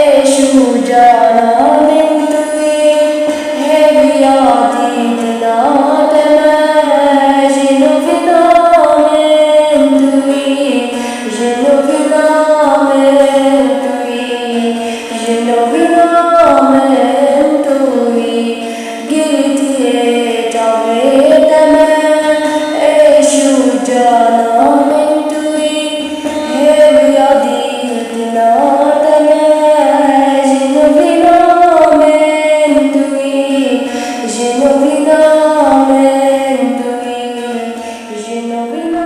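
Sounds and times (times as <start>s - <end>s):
woman singing ornamented melody: 0.0s - 39.0s.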